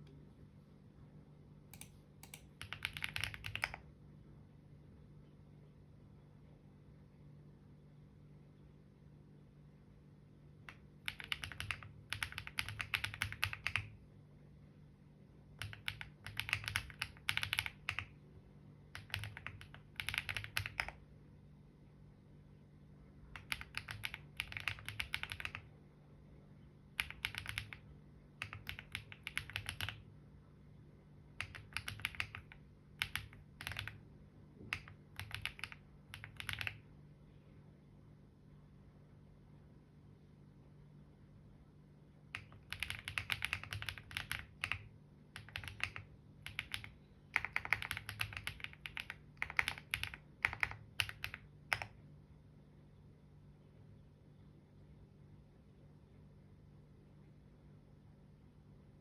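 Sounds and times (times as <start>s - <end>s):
low steady hum: 0.0s - 59.0s
typing on computer keyboard: 1.7s - 3.8s, 10.6s - 14.0s, 15.6s - 18.2s, 18.9s - 21.0s, 23.3s - 25.7s, 27.0s - 30.0s, 31.4s - 34.0s, 34.6s - 36.8s, 42.4s - 52.0s.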